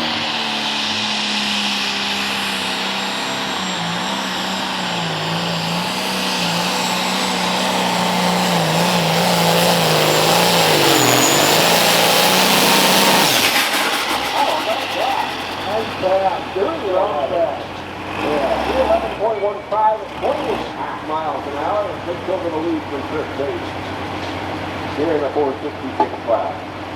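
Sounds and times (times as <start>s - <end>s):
thin high whine: 0.0s - 19.7s
tractor diesel engine under load: 0.0s - 26.9s.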